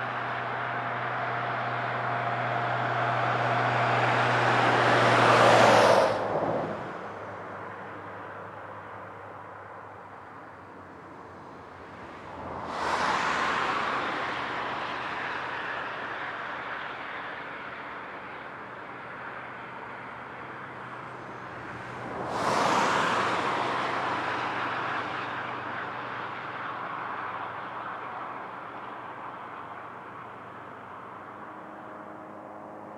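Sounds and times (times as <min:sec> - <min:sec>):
vehicles passing close by: 0:00.0 - 0:32.9
distant traffic: 0:11.8 - 0:32.9.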